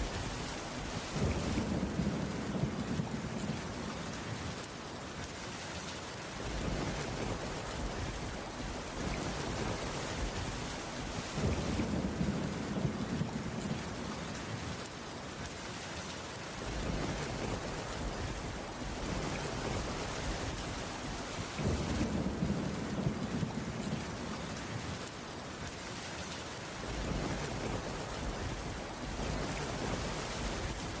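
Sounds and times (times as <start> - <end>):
rain on wooden roof: 0.0 - 31.0.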